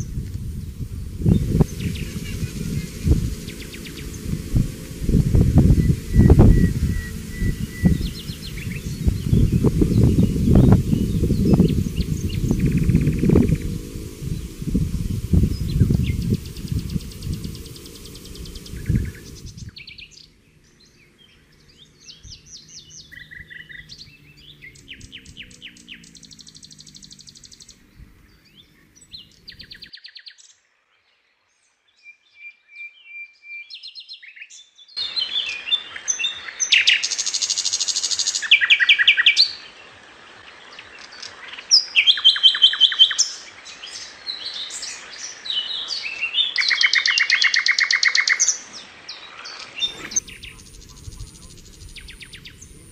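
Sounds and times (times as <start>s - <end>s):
steady hiss: 0.0s - 20.2s, 35.0s - 52.9s
birds chirping and trilling: 0.0s - 52.9s.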